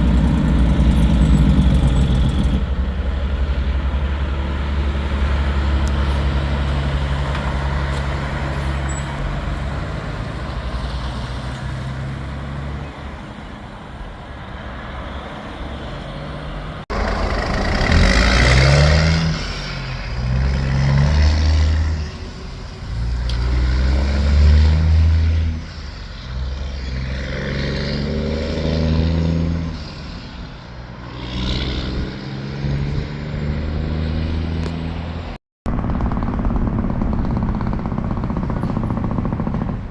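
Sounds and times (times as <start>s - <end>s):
truck pulling away through gears: 0.0s - 12.8s, 16.9s - 29.9s
diesel truck engine running: 16.9s - 24.1s.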